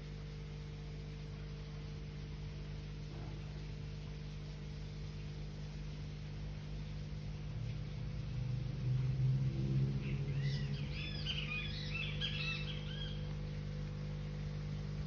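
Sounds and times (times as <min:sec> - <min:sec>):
low mechanical hum: 0:00.0 - 0:15.0
birds chirping: 0:09.5 - 0:13.7.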